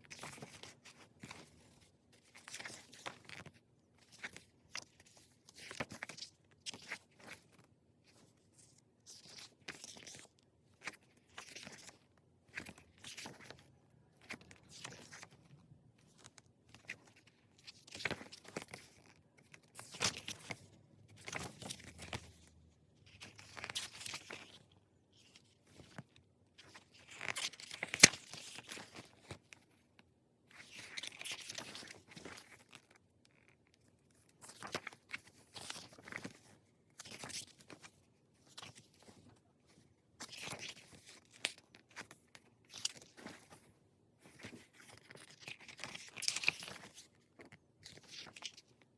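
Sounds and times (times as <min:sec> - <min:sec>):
pages turning: 0:09.2 - 0:22.5, 0:23.1 - 0:29.7, 0:30.5 - 0:33.5, 0:34.4 - 0:48.6.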